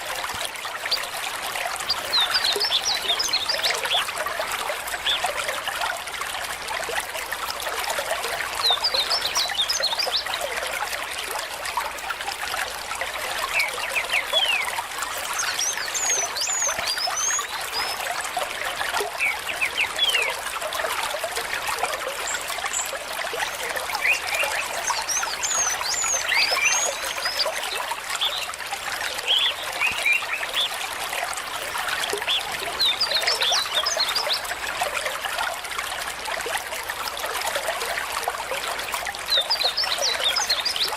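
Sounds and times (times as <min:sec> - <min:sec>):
small stream trickling and splashing: 0:00.0 - 0:40.9
birds chirping: 0:22.7 - 0:28.5, 0:29.2 - 0:30.8.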